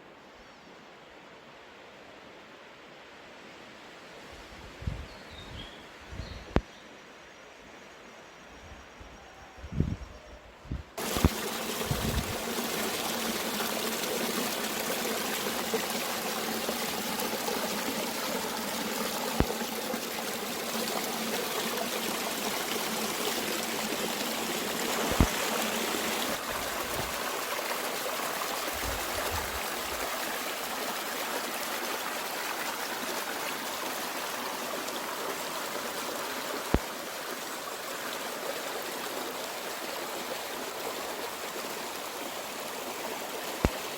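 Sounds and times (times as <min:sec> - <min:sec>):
stream rushing water: 0:11.0 - 0:43.9.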